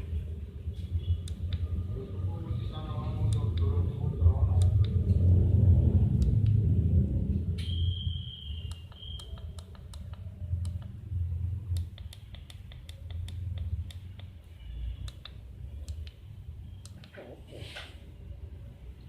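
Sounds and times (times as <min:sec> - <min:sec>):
low motor hum: 0:00.0 - 0:08.0.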